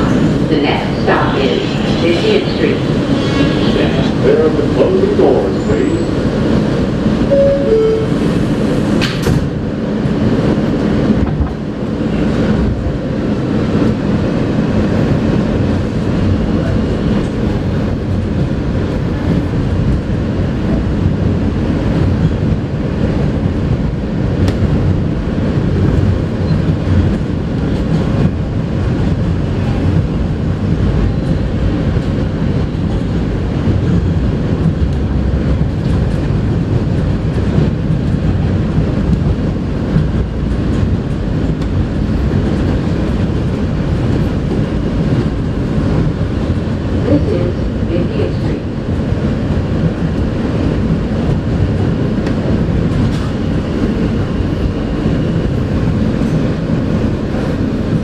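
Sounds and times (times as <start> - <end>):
train rumbling on track: 0.0 - 58.0
subway doors shutting knock: 6.5 - 12.2
two-note door chime: 7.3 - 8.2.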